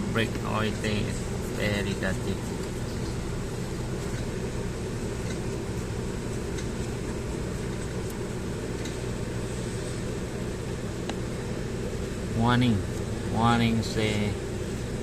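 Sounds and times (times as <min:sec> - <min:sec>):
person talking: 0:00.0 - 0:02.5, 0:12.3 - 0:14.4.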